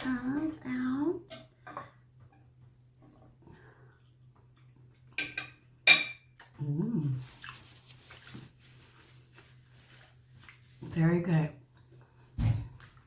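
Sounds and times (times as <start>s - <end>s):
cutlery clinking on a plate: 5.2s - 6.3s.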